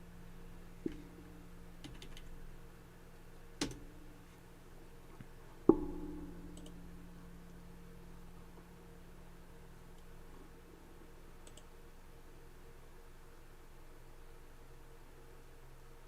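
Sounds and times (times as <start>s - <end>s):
low electrical hum: 0.0s - 16.0s
knock with low ring: 5.7s - 6.4s.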